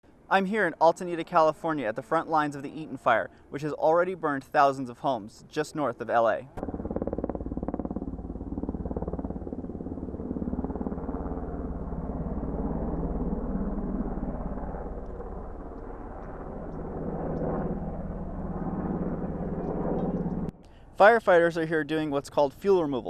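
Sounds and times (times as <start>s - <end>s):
engine pulsing drone: 6.5s - 21.0s.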